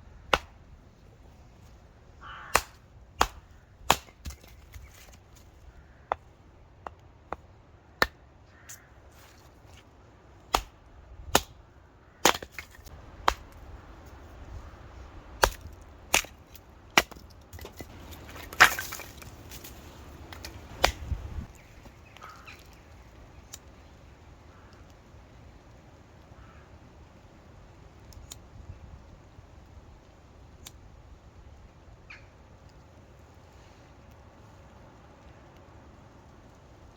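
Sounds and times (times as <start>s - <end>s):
firewood being chopped: 0.2s - 0.7s, 2.4s - 11.6s, 12.2s - 14.2s, 15.3s - 21.5s.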